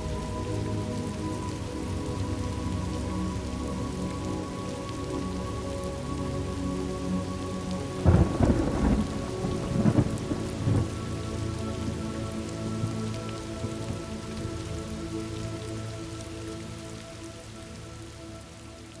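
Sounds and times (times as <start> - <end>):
steady rain falling: 0.0 - 19.0
thunder rumbling: 8.0 - 11.1.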